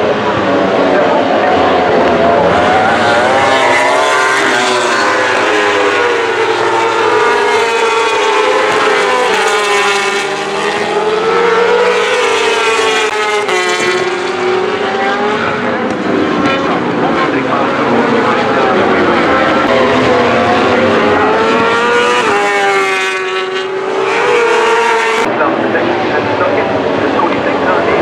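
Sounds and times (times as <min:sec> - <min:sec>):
racing motorcycle engines: 0:00.0 - 0:28.0.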